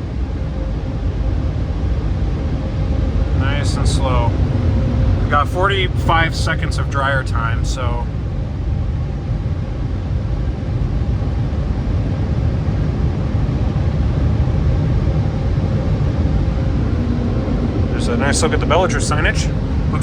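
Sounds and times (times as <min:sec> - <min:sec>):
car wash dryer blowers: 0:03.2 - 0:20.0.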